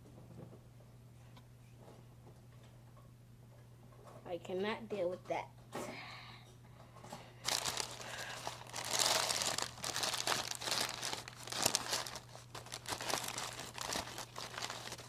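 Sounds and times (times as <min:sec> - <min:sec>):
slime crinkling and crackling: 0:07.5 - 0:15.0.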